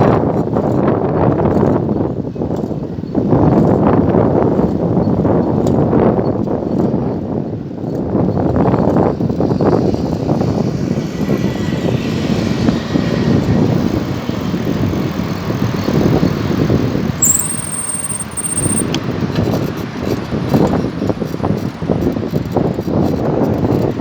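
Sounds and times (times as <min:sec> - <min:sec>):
wind and road noise: 0:00.0 - 0:24.0
passing traffic: 0:09.1 - 0:24.0
thin high whistle: 0:17.2 - 0:19.0.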